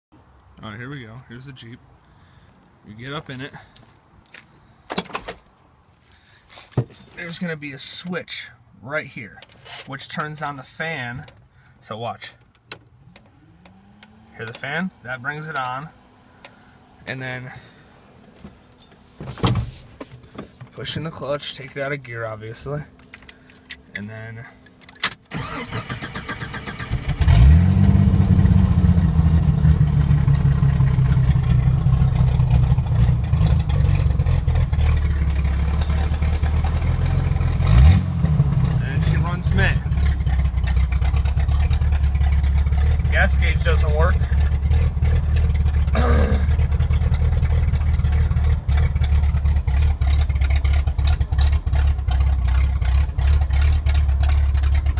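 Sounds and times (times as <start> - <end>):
starter motor cranking: 25.0 - 27.9
car engine idling loudly: 28.1 - 37.6, 38.2 - 54.9.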